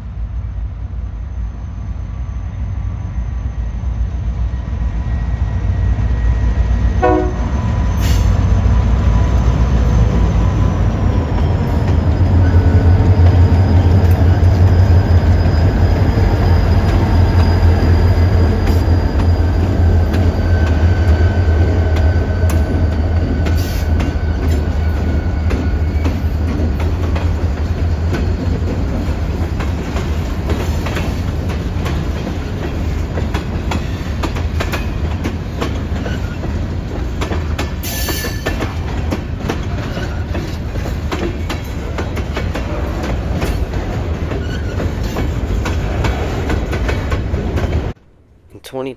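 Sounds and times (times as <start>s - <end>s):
diesel locomotive engine hum: 0.0s - 48.0s
steel wheels on rails: 5.0s - 48.0s
high-pitched wheel squeal: 10.3s - 21.4s, 44.3s - 45.4s.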